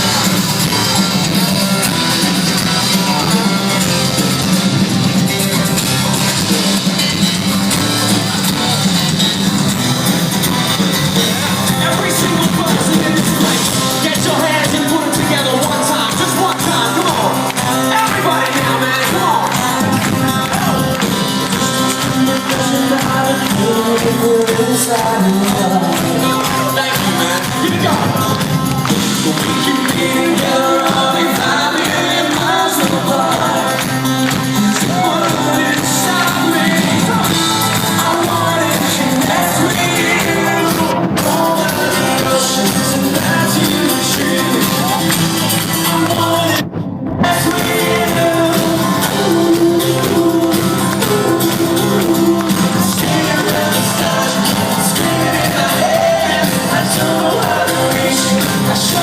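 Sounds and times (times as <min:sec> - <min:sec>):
live rock band: 0:00.0 - 0:59.0
person singing: 0:11.1 - 0:59.0.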